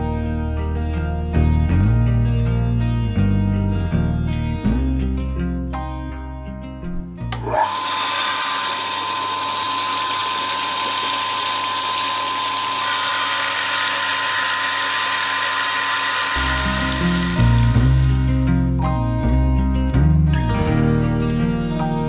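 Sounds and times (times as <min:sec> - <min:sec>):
music: 0:00.0 - 0:07.6, 0:16.3 - 0:22.0
small electric motor whining: 0:07.4 - 0:18.6.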